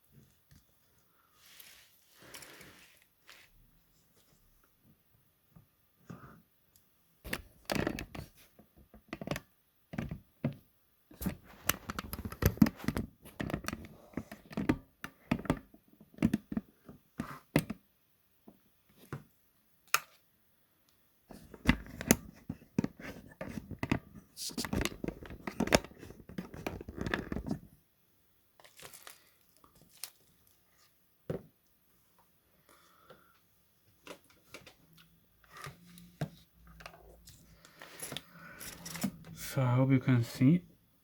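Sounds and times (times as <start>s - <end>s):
hands handling small objects: 0.2s - 3.6s, 28.6s - 31.0s.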